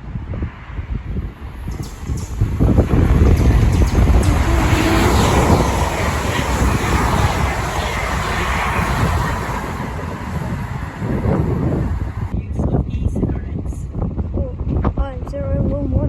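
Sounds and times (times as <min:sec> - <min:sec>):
train rumbling past: 0:00.4 - 0:12.4
brief rising tone: 0:01.5 - 0:12.3.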